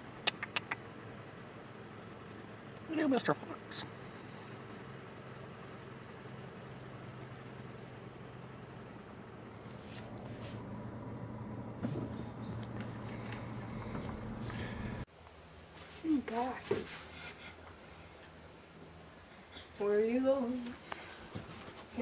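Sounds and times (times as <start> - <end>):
bird chirping: 0.0 - 1.7, 6.2 - 15.0
low hum: 0.0 - 15.1.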